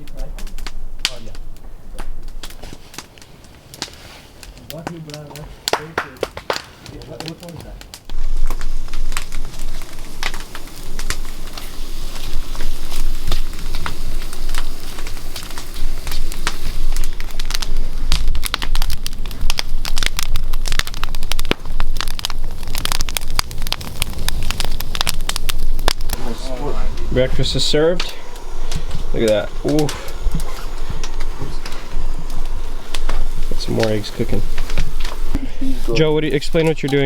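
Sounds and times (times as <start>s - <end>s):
wood fire crackling: 0.0s - 37.0s
low rumble: 8.1s - 36.9s.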